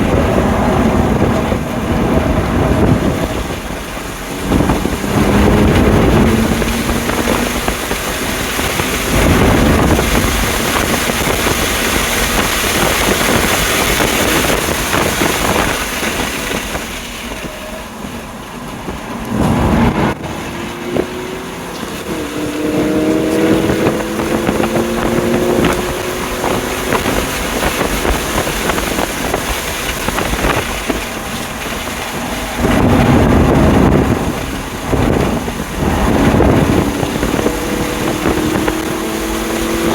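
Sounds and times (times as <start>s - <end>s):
car engine at full power: 0.0s - 39.9s
wind noise on microphone: 0.0s - 39.9s.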